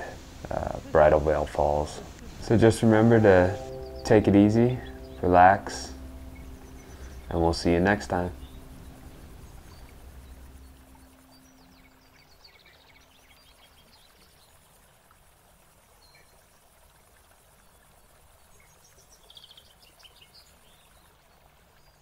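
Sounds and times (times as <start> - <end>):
small birds chirping: 0.0 - 14.8, 17.6 - 22.0
steady high hiss: 0.0 - 15.0.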